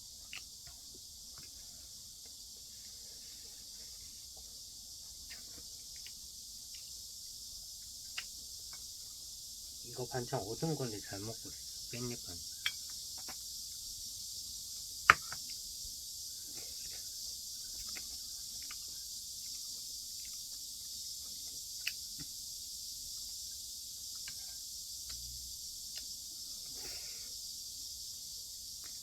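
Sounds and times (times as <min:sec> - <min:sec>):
steady high-pitched hiss: 0:00.0 - 0:29.0
faint chewing: 0:00.1 - 0:09.4, 0:15.3 - 0:27.4.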